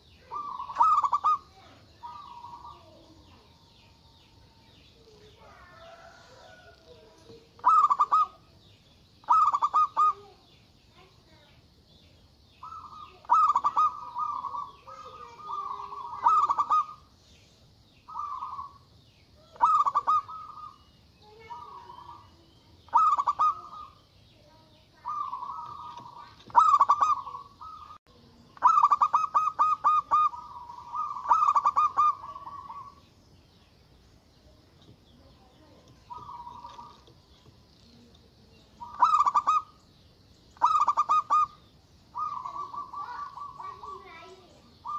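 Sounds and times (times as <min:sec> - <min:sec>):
dove cooing: 0:00.0 - 0:03.6, 0:05.0 - 0:08.6, 0:09.2 - 0:10.5, 0:12.6 - 0:17.1, 0:18.1 - 0:24.0, 0:25.0 - 0:33.1, 0:35.5 - 0:37.3, 0:38.0 - 0:39.8, 0:40.6 - 0:44.9.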